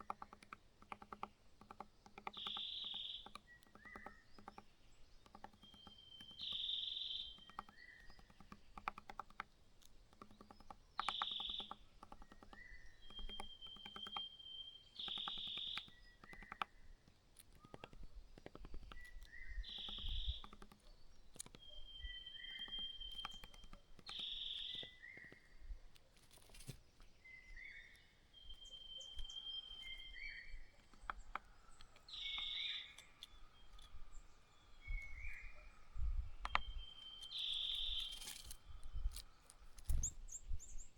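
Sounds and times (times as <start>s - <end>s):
faint clicks: 0.0s - 14.3s, 15.0s - 27.1s, 27.7s - 35.4s, 36.4s - 40.2s
bird whistling call: 2.4s - 4.2s, 5.6s - 8.2s, 12.5s - 16.1s, 21.6s - 25.4s, 27.3s - 30.6s, 32.1s - 33.1s, 36.5s - 38.5s.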